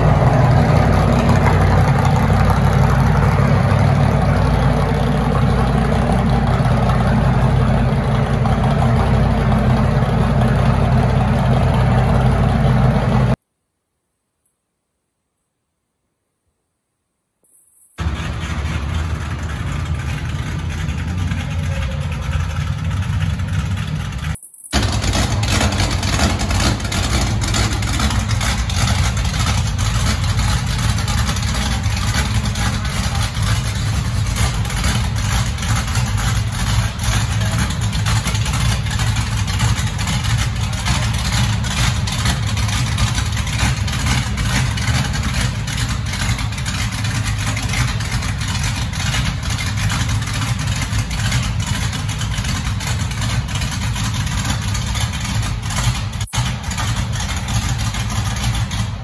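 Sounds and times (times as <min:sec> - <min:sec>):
racing car engine idling: 0:00.0 - 0:13.4, 0:18.0 - 0:59.0.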